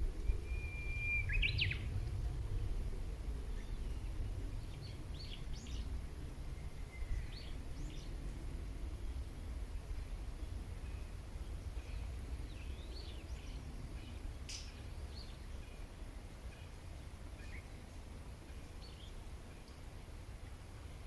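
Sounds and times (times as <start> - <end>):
low outdoor rumble: 0.0 - 21.0
birds chirping and whistling: 0.5 - 1.8.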